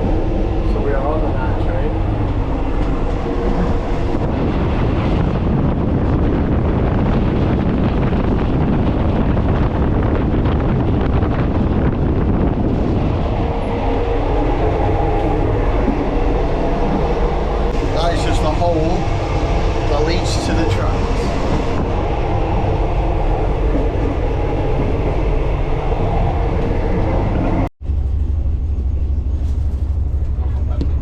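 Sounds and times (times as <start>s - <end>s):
train carriage rumbling and rattling: 0.0s - 31.0s
train wheels on rails: 14.5s - 21.9s.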